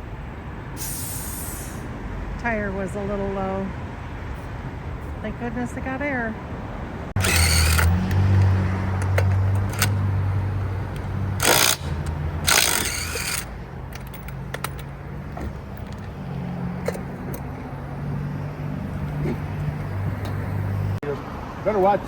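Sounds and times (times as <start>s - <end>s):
short hissing bursts: 0.8s - 1.9s
vehicle engine idling: 7.1s - 21.0s.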